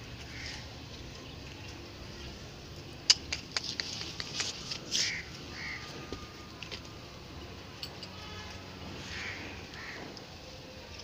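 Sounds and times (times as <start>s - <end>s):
steady background noise: 0.0s - 11.0s
sharp clicks and taps: 3.1s - 4.8s.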